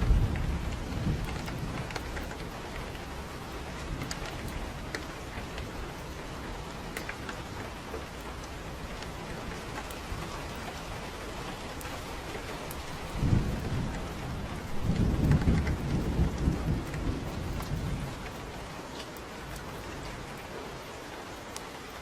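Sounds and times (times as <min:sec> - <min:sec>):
thunder rolling: 0:00.0 - 0:18.8
steady rain: 0:00.0 - 0:22.0.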